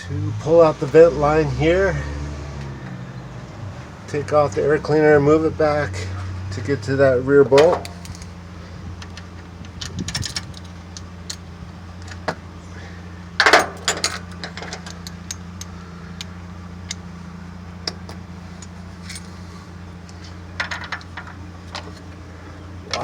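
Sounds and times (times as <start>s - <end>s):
metal tools clinking on engine parts: 7.5s - 8.4s, 9.0s - 12.4s, 13.4s - 17.1s, 17.8s - 22.2s.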